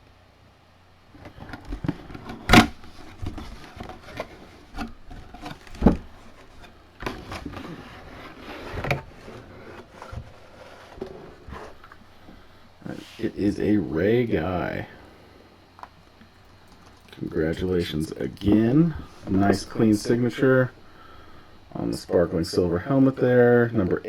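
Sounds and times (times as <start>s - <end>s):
packaging handling knocks and rustles: 1.1s - 12.8s, 18.3s - 22.8s.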